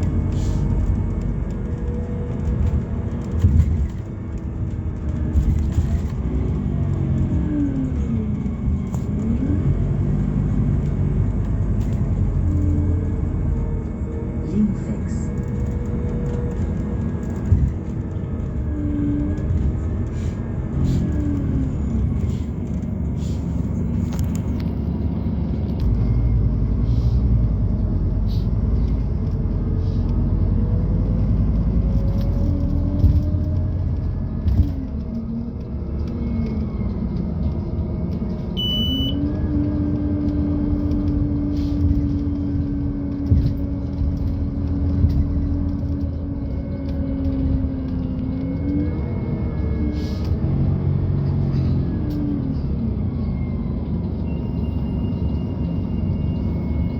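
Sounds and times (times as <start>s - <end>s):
bus engine and driveline: 0.0s - 56.9s
road rumble and knocks: 0.0s - 56.9s
short electronic beep: 38.6s - 39.2s.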